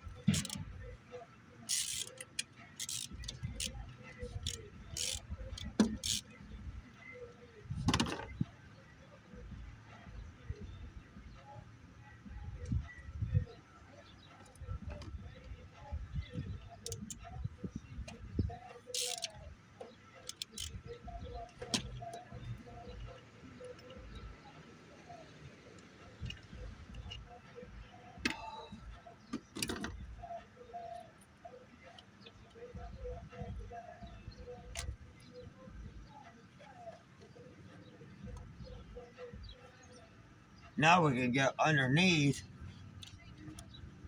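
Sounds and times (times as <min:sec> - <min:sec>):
ratchet wrench and tools on metal: 0:00.0 - 0:01.0, 0:01.6 - 0:06.6, 0:16.2 - 0:19.5, 0:20.2 - 0:24.3
faint birds chirping: 0:00.0 - 0:44.0.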